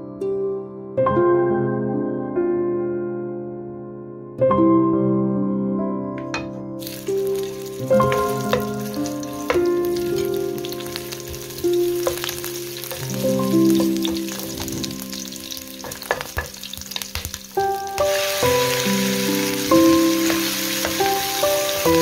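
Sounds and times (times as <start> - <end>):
soft background music: 0.0 - 22.0
ginger sizzling in hot oil: 6.8 - 22.0.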